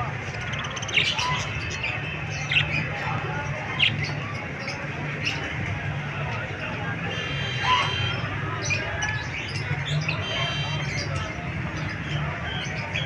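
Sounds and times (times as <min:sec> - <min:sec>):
parrot chirping calls: 0:07.1 - 0:08.3.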